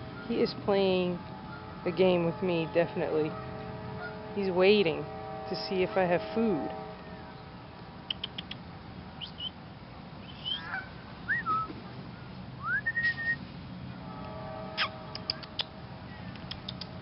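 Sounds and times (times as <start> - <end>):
steady low rumble: 0.0 - 17.0
birds chirping and whistling: 9.2 - 9.6, 10.2 - 11.7.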